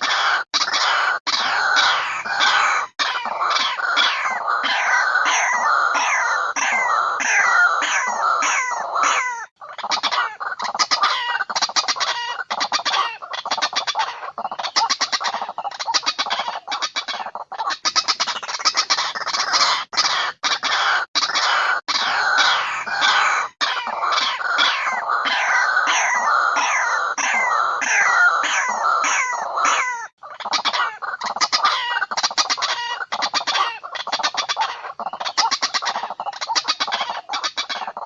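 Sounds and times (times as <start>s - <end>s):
waterhen calls recording: 0.0s - 38.0s.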